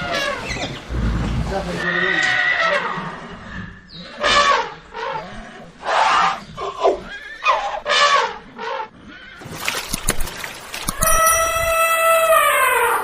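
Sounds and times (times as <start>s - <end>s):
horse whinnying: 1.8s - 3.0s, 11.0s - 13.0s.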